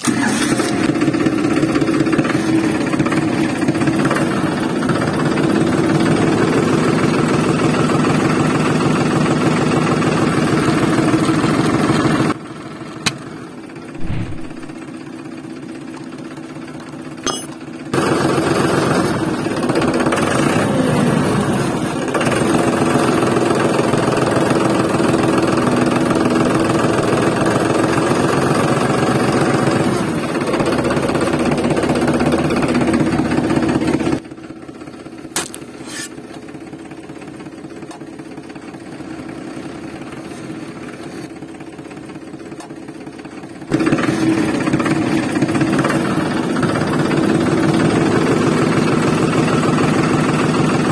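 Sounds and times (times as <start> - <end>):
motor running with fast pulse: 14.0 - 15.0.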